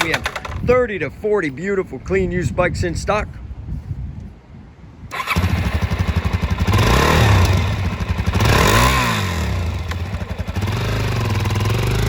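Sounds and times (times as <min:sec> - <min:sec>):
motorcycle engine starting and revving: 0:00.0 - 0:00.8, 0:05.1 - 0:12.0.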